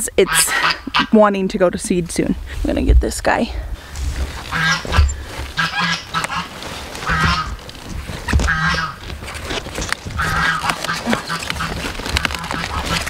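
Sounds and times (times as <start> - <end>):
low bumps: 1.8 - 13.0
leaves rustling: 3.6 - 13.0
bird calling: 3.8 - 9.2, 10.0 - 13.0.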